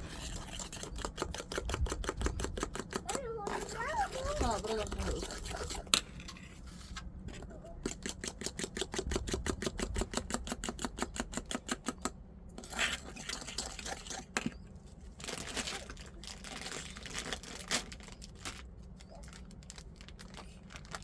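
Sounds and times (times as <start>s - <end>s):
rustling or scraping: 0.0s - 1.0s, 3.4s - 7.8s.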